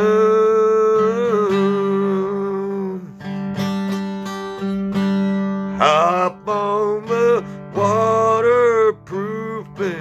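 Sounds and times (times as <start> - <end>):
person singing: 0.0 - 3.3, 5.7 - 10.0
strummed guitar: 0.0 - 10.0.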